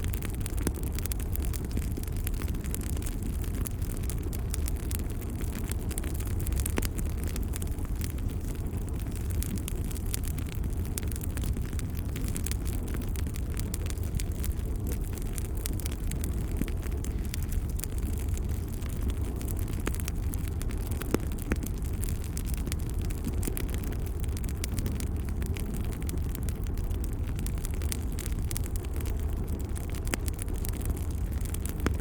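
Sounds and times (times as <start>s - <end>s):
fire crackles and pops: 0.0s - 32.0s
fire rumbling: 0.0s - 32.0s.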